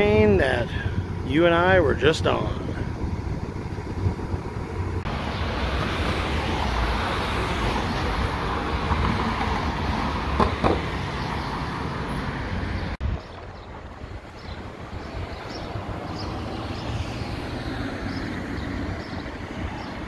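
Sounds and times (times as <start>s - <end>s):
vehicle passing: 13.8s - 20.0s.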